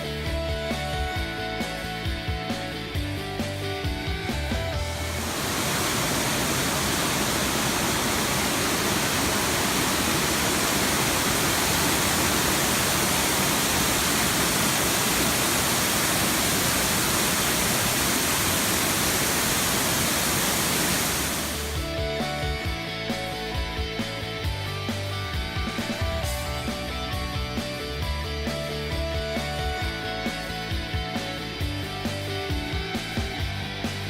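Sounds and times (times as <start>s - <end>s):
background music: 0.0s - 5.3s, 21.6s - 34.0s
waterfall roaring: 5.2s - 21.8s.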